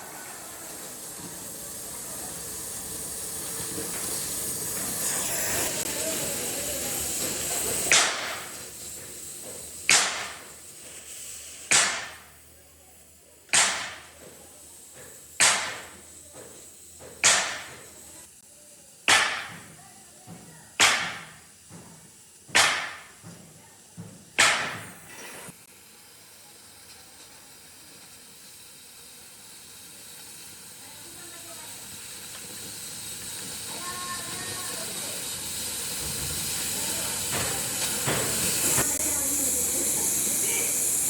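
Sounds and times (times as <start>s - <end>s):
steady hiss: 0.0s - 41.0s
sharp strikes: 13.5s - 14.0s.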